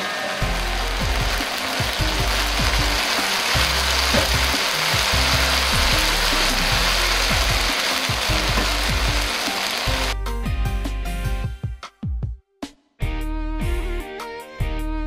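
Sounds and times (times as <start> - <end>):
food sizzling in a wok: 0.0 - 10.2
background music with low beat: 0.0 - 15.0.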